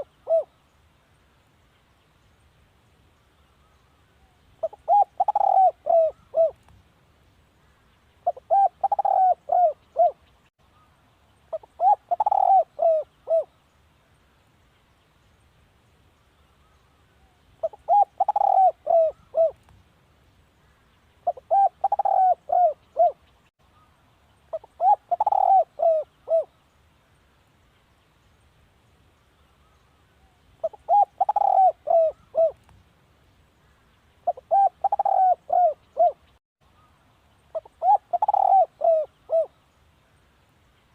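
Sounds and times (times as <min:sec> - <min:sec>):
dove cooing: 0:00.0 - 0:00.5, 0:04.6 - 0:06.6, 0:08.2 - 0:10.2, 0:11.5 - 0:13.5, 0:17.6 - 0:19.6, 0:21.2 - 0:23.2, 0:24.5 - 0:26.5, 0:30.6 - 0:32.6, 0:34.2 - 0:36.2, 0:37.5 - 0:39.6.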